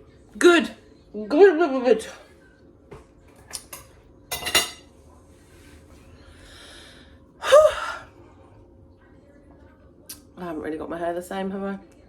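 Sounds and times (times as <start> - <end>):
woman breathing sharply: 6.3 - 8.1
woman gasping: 6.6 - 8.1.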